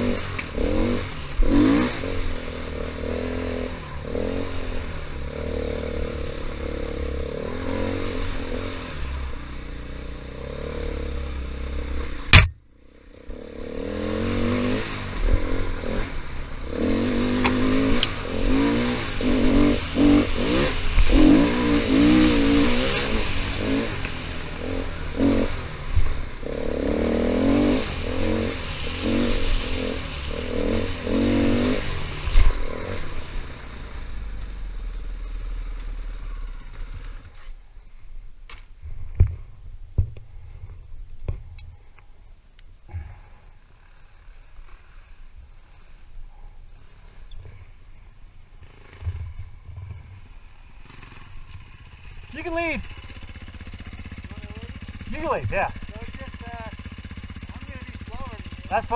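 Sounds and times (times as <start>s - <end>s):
motorcycle engine revving: 0.0s - 37.7s, 42.9s - 58.9s
sharp crack: 12.3s - 12.7s
engine clatter: 48.6s - 58.9s.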